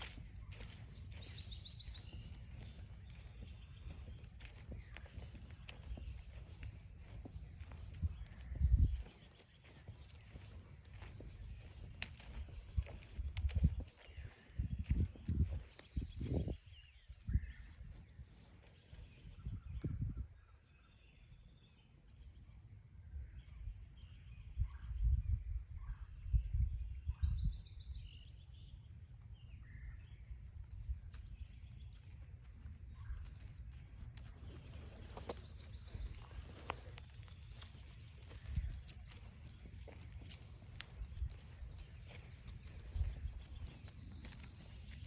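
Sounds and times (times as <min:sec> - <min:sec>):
footsteps on trail: 0:00.0 - 0:19.4, 0:29.4 - 0:45.0
wind rumble on microphone: 0:00.0 - 0:21.4, 0:22.2 - 0:45.0
woodland birds singing: 0:00.0 - 0:45.0.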